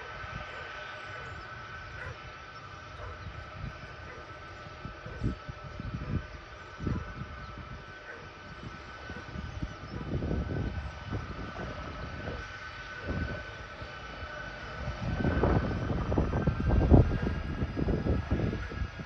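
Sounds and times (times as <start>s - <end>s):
jet engines whining: 0.0s - 19.0s
low engine rumble: 0.0s - 19.0s.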